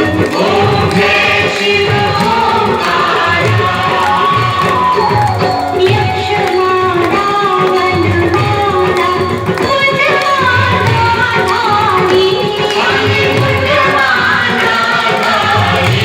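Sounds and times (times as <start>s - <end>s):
person singing melodic vocal: 0.0s - 16.0s
steady drum beat: 0.0s - 16.0s.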